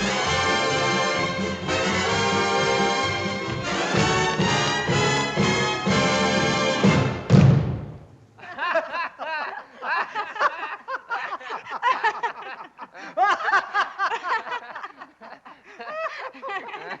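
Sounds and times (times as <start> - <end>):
people laughing: 8.4 - 17.0.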